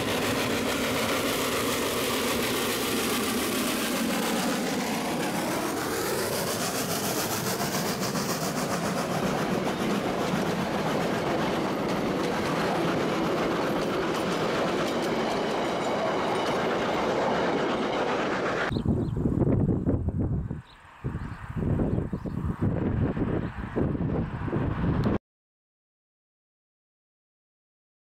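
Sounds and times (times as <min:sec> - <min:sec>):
wheels clattering over rail joints: 0:09.1 - 0:18.5.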